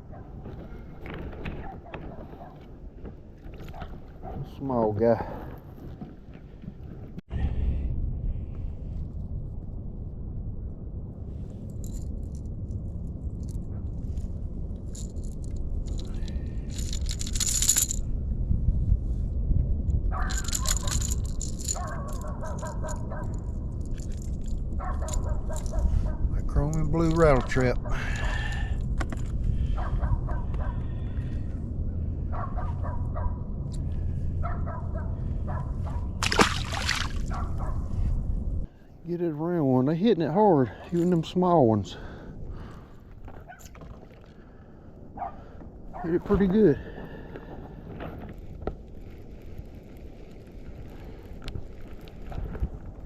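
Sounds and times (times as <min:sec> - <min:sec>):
wind rumble on microphone: 0:00.0 - 0:39.0, 0:40.7 - 0:53.0
fishing lure rattling: 0:14.9 - 0:18.0, 0:20.2 - 0:25.8
water splash: 0:36.2 - 0:37.3.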